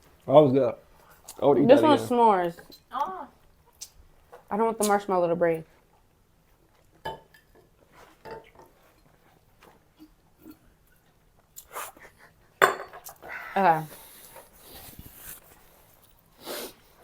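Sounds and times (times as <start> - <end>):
cutlery clinking on a plate: 12.6 - 13.2.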